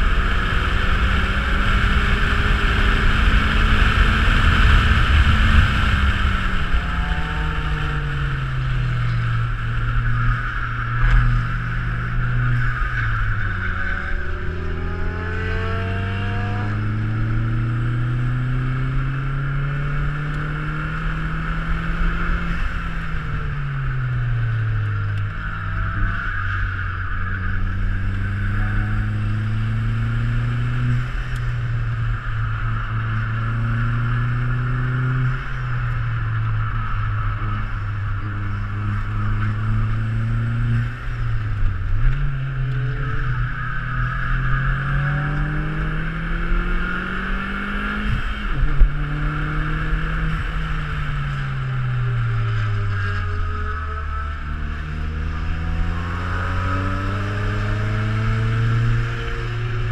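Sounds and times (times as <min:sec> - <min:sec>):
car engine accelerating: 0:00.0 - 0:59.9.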